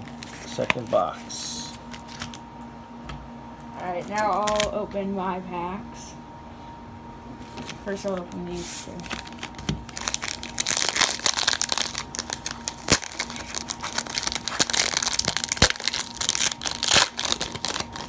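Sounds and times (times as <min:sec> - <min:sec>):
card pack wrappers crinkling: 0:00.0 - 0:02.4, 0:04.1 - 0:04.8, 0:07.5 - 0:18.0.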